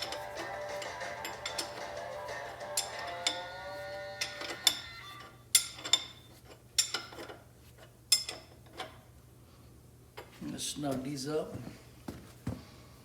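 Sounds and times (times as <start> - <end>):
metal tools clinking: 0.0 - 2.0, 2.6 - 3.5, 4.2 - 6.2, 6.8 - 7.4.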